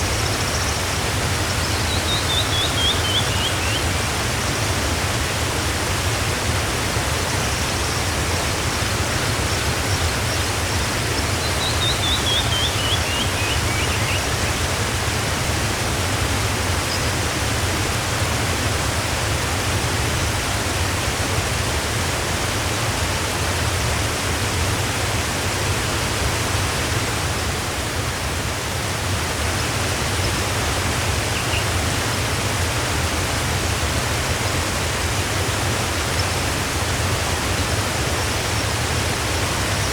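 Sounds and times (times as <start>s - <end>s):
waterfall roaring: 0.0s - 39.9s
bird singing chirps: 1.5s - 3.8s, 11.1s - 14.3s.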